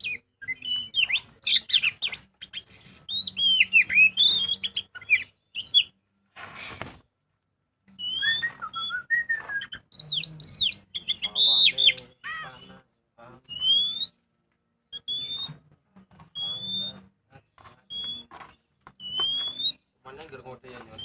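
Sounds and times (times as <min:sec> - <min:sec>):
songbird singing: 0:00.0 - 0:06.2, 0:07.9 - 0:21.0
short hiss: 0:06.4 - 0:07.0.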